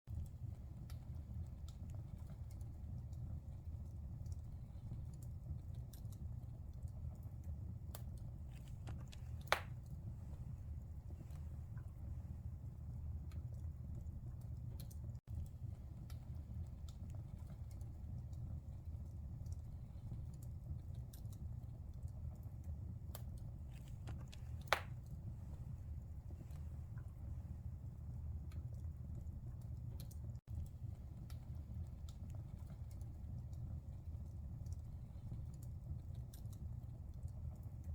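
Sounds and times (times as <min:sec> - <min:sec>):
wood fire crackling and popping: 0:00.1 - 0:37.9
burning wood popping: 0:07.9 - 0:12.2, 0:23.1 - 0:27.3.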